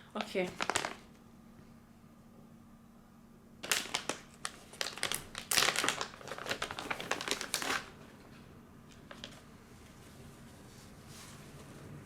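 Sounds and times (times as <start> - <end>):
packaging crinkling and rustling: 0.2 - 1.2, 3.6 - 8.3, 8.9 - 9.5.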